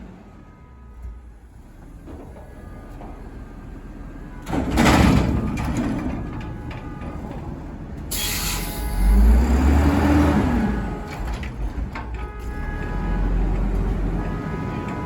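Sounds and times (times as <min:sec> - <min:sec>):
garbage truck engine revving: 0:08.5 - 0:11.9.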